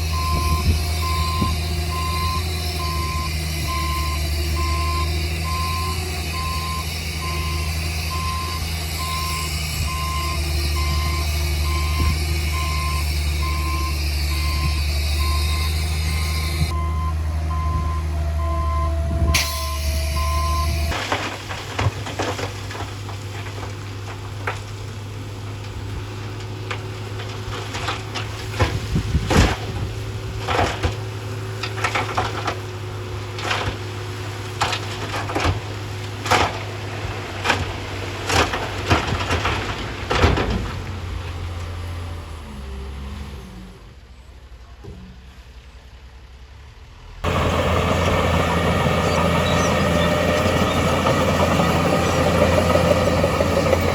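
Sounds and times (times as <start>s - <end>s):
reversing alarm beeping: 0.0s - 20.9s
diesel engine running: 0.0s - 53.9s
low engine rumble: 0.0s - 53.9s.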